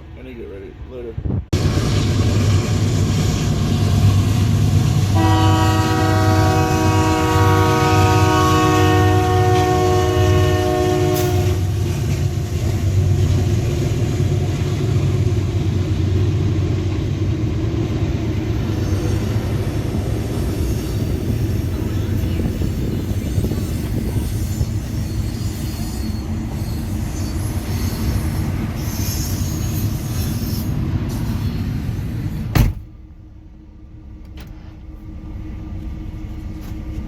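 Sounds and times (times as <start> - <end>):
locomotive air horn: 5.1 - 11.7
diesel engine rumble: 11.3 - 25.3, 31.7 - 37.0.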